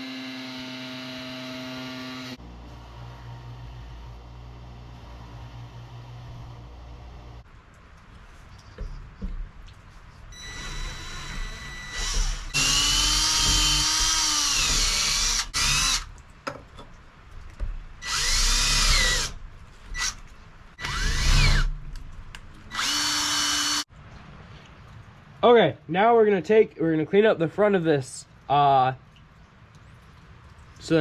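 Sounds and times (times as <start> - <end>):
power drill boring through steel: 0.0 - 2.4, 10.4 - 16.0, 18.0 - 19.4, 20.8 - 21.7, 22.7 - 23.9.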